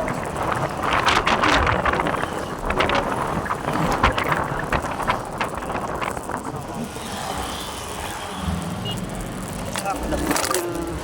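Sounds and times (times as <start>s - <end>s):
wind buffeting microphone: 0.0s - 7.0s
road noise: 0.0s - 11.0s.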